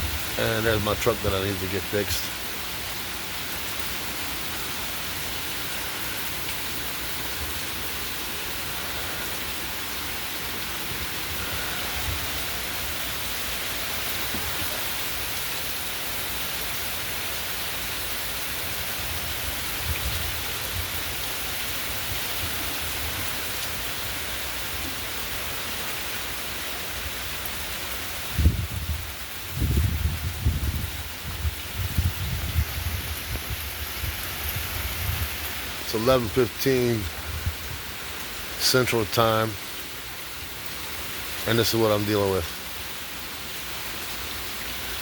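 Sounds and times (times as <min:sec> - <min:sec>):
heavy rain pouring: 0:00.0 - 0:45.0
wind gusts on microphone: 0:11.0 - 0:13.0, 0:19.1 - 0:21.1, 0:28.2 - 0:35.8, 0:37.0 - 0:38.0.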